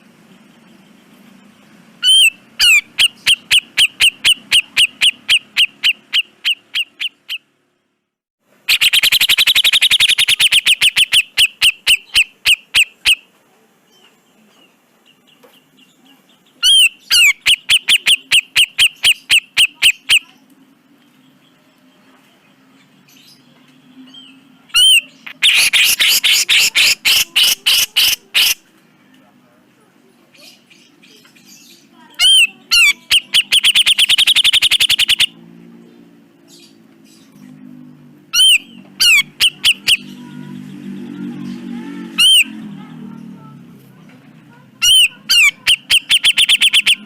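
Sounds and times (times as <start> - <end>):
bird calling harsh rapid notes: 2.0 - 7.5, 8.6 - 13.3, 16.6 - 20.4, 24.7 - 28.7, 32.1 - 35.4, 38.3 - 42.8, 44.8 - 47.0.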